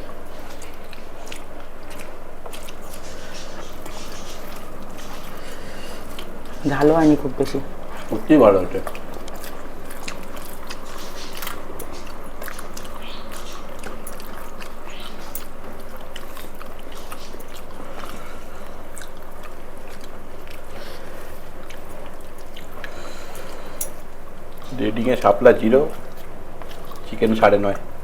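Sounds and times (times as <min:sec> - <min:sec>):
background hum: 0:00.0 - 0:28.0
chewing food: 0:00.0 - 0:28.0
mouth clicks: 0:00.0 - 0:28.0.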